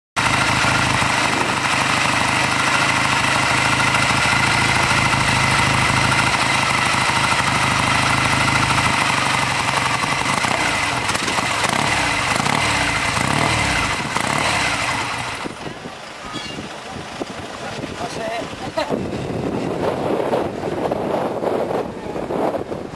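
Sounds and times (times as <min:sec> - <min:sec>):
motorcycle engine idling and revving: 0:00.2 - 0:22.9.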